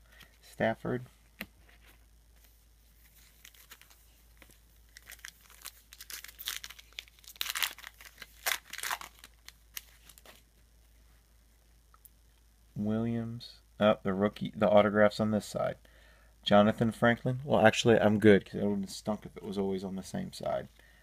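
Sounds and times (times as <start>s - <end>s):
foil wrapper tearing and crinkling: 3.2s - 4.0s, 4.9s - 10.4s.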